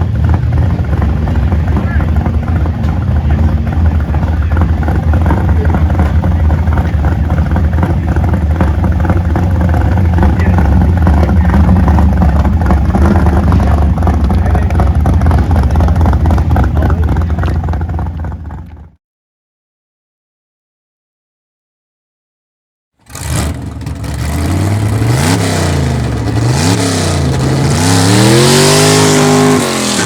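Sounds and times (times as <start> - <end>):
people's voices: 0.0 - 17.9
car engines rumbling: 0.0 - 19.0, 23.1 - 30.0.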